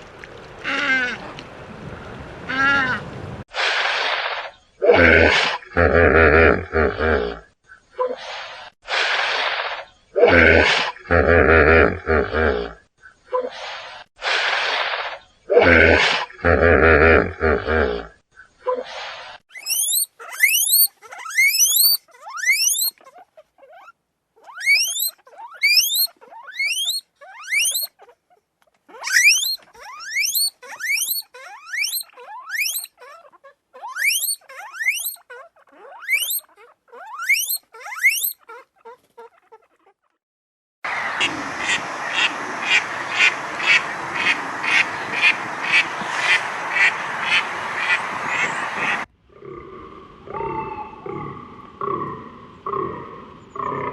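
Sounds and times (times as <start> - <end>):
animal squeaky calls: 18.7 - 40.2
harsh animal call: 18.7 - 40.2, 43.7 - 53.9.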